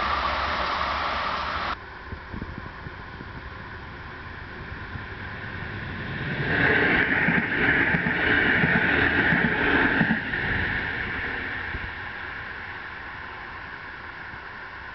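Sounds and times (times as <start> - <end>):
train passing with wheel clatter: 0.0 - 14.9.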